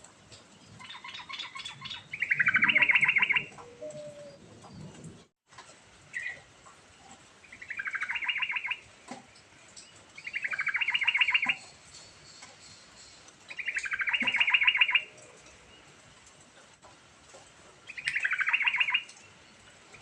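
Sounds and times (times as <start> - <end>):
bulbul singing: 0.8 - 4.4, 7.4 - 8.9, 9.8 - 15.8, 17.9 - 19.4.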